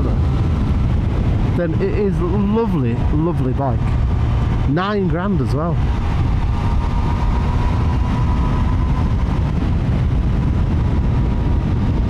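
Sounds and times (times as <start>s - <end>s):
rush of wind on microphone: 0.0s - 12.0s
motorcycle engine running: 5.8s - 12.0s.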